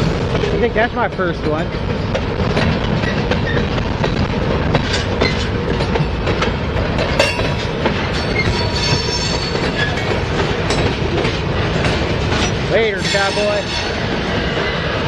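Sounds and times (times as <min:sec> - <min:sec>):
steel wheels rumbling on rail: 0:00.0 - 0:15.0
wheel clicks over rail joints: 0:01.5 - 0:13.9
sharp clank: 0:07.2 - 0:09.8
faint high wheel squeal: 0:08.2 - 0:10.0.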